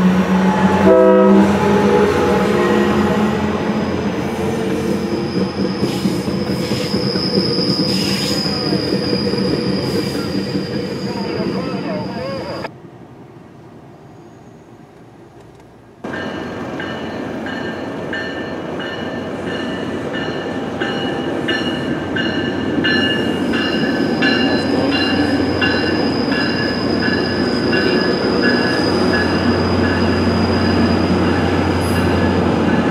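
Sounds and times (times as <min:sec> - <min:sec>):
diesel locomotive humming: 0:00.0 - 0:32.9
train coaches rumbling by: 0:00.0 - 0:32.9
high steady squeal: 0:04.5 - 0:12.7, 0:21.6 - 0:32.8.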